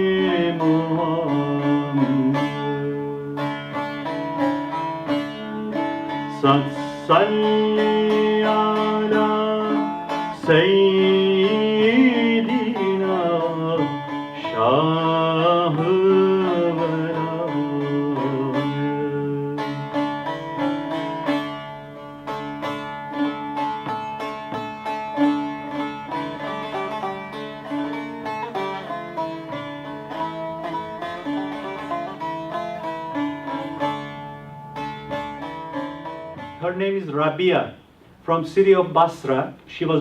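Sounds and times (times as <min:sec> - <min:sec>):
person singing: 0:00.0 - 0:03.2, 0:05.7 - 0:20.0
plucked string instrument melody: 0:00.0 - 0:40.0.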